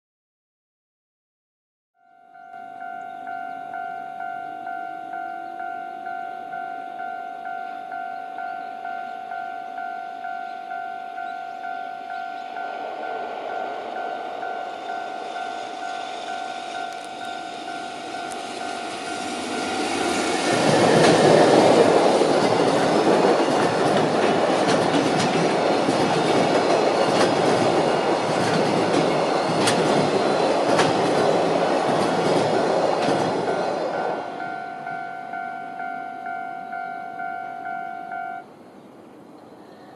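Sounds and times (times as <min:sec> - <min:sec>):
level crossing bell ringing: 0:02.0 - 0:20.2, 0:33.6 - 0:38.4
freight train passing: 0:02.3 - 0:39.7
wheels clattering over rail joints: 0:16.0 - 0:34.2.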